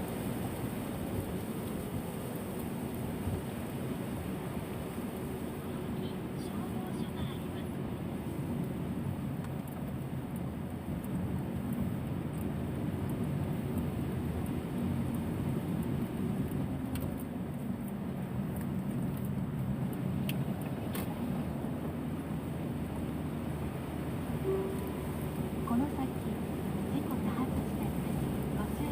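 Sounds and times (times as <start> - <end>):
low road vehicle rumble: 0.0 - 28.9
faint clicks: 15.8 - 21.2.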